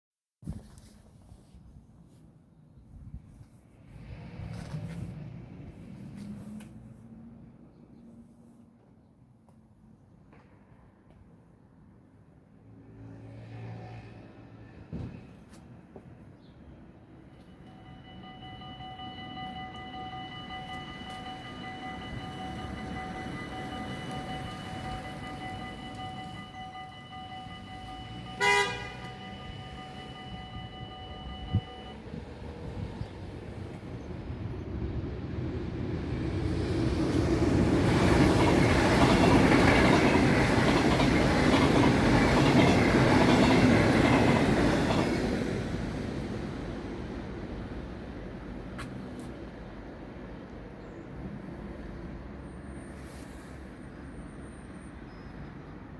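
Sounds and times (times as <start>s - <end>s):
electric train passing: 16.8s - 52.8s
wheel and rail noise: 17.1s - 53.8s
level crossing bells ringing: 17.4s - 32.1s.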